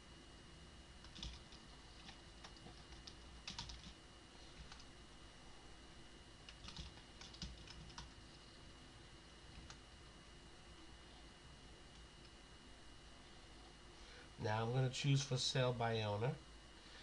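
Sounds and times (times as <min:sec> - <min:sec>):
typing on computer keyboard: 0:01.0 - 0:04.0, 0:06.5 - 0:08.2.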